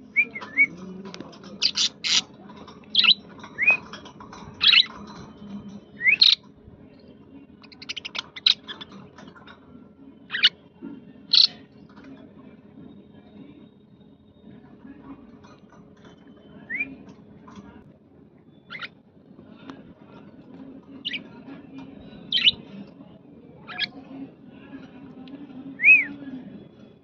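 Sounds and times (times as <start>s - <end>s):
budgerigars chirping: 1.6s - 2.3s, 7.7s - 9.0s, 11.3s - 11.6s, 22.3s - 22.6s.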